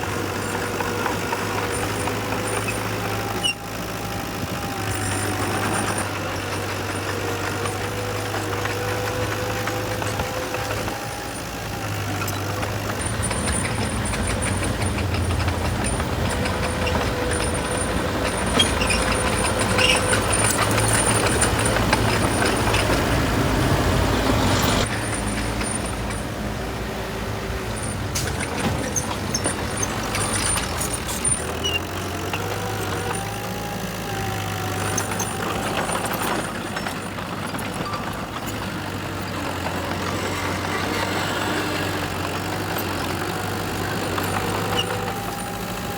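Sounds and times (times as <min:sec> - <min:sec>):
heavy diesel engine running: 0:00.0 - 0:45.9.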